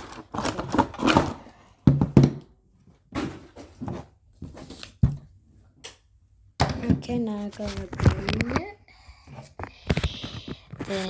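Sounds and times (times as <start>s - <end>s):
toy packaging rustling and clicking: 0.0s - 1.5s, 7.4s - 11.0s.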